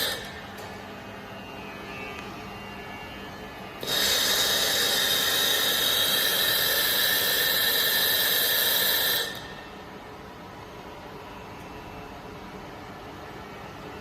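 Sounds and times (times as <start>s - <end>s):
laser welding machine hissing: 0.0s - 0.4s, 3.8s - 9.7s.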